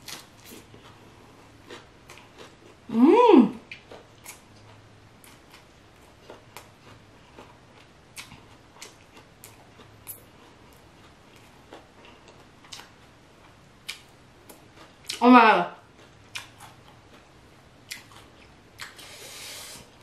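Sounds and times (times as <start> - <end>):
wet chewing with mouth closed: 3.6 - 15.2, 15.9 - 19.7.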